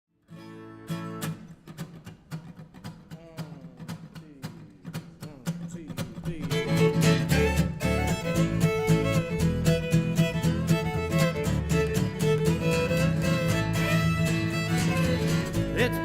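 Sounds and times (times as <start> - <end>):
plucked acoustic guitar: 0.2 - 16.0
acoustic string band music: 6.0 - 16.0.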